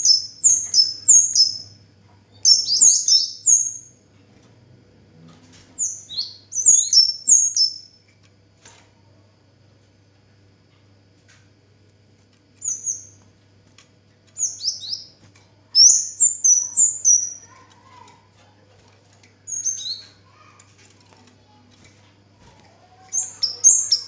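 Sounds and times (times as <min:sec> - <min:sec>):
bird chirping: 0:00.0 - 0:04.0, 0:05.8 - 0:08.0, 0:12.6 - 0:13.2, 0:14.4 - 0:18.2, 0:19.5 - 0:20.5, 0:22.9 - 0:24.0
faint low hum: 0:00.0 - 0:24.0.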